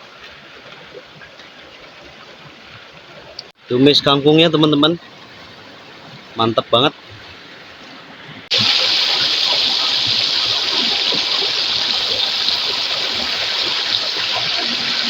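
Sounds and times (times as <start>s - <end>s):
river rushing over rocks: 8.5s - 15.0s.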